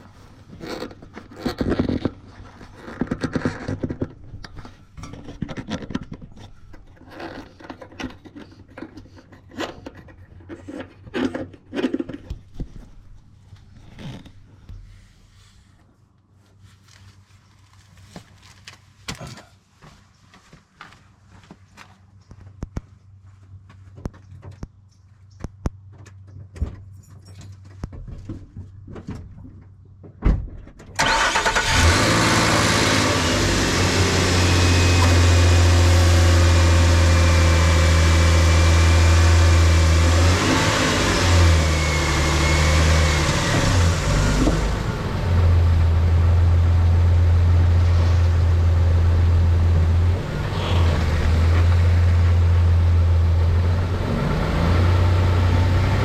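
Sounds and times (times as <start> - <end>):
car engine starting and running: 31.0 - 56.0.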